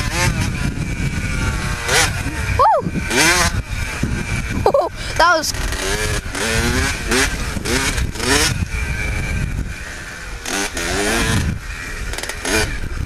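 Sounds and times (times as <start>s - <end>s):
pit bike engine revving: 0.0s - 13.0s.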